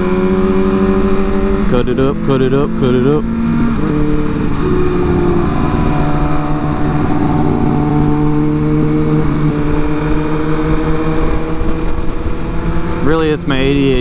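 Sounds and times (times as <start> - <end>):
motorcycle engine cruising: 0.0 - 14.0
wind rush on microphone: 3.6 - 14.0.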